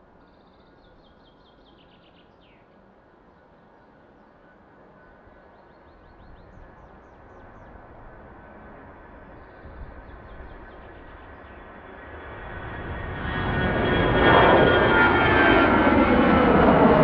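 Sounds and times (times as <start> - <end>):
small birds chirping: 0.2 - 2.7, 9.3 - 11.8
jet aircraft engine: 2.8 - 17.0.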